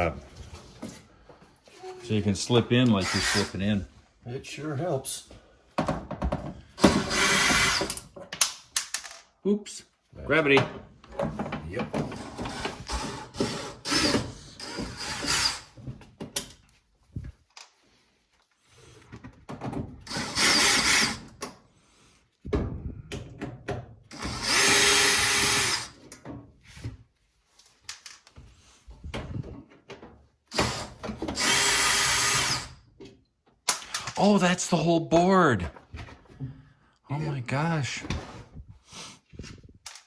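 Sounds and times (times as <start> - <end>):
power drill running in bursts: 3.0 - 3.5, 6.8 - 7.9, 20.1 - 21.2, 24.2 - 25.9, 30.5 - 32.7.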